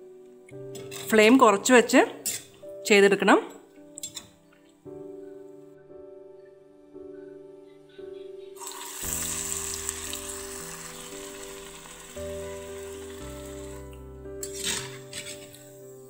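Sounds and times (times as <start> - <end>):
batter frying in hot oil: 8.6 - 13.8
spatula entering sizzling oil: 8.6 - 15.8.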